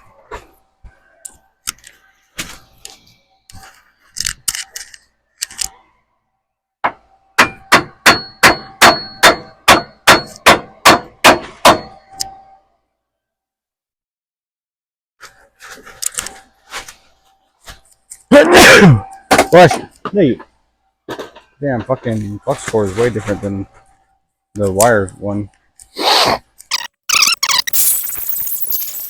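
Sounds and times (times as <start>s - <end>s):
hammer striking steel: 7.4s - 12.4s.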